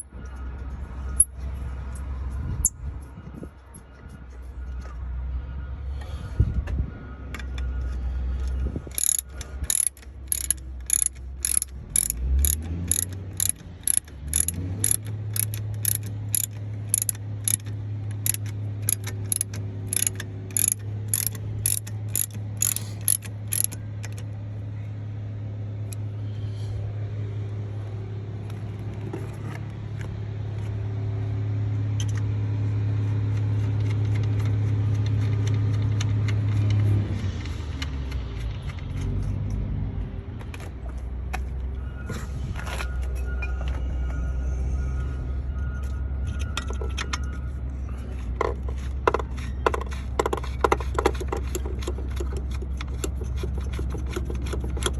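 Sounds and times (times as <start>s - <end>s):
ratchet wrench clicking: 8.9s - 24.2s, 50.4s - 54.9s.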